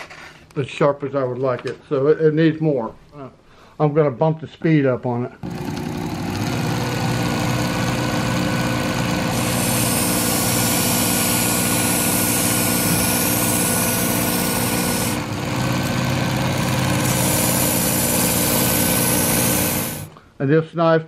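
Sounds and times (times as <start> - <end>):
belt sharpener motor running: 5.4 - 20.2
knife grinding on abrasive belt: 9.0 - 20.1.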